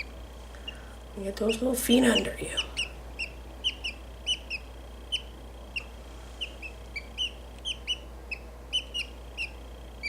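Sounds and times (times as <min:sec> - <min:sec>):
bird chick peeping: 0:00.0 - 0:10.0.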